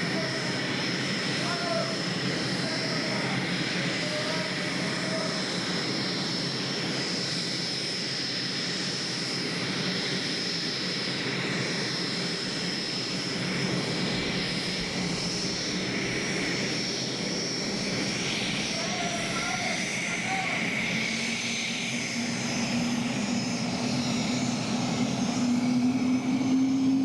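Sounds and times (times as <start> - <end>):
gas-turbine engines rushing: 0.0 - 27.0
high turbine whine: 0.0 - 27.0.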